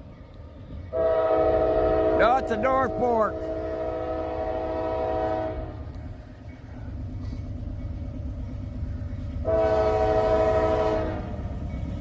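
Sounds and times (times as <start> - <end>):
passing train rumble: 0.0 - 12.0
locomotive air horn: 0.9 - 5.8, 9.4 - 11.4.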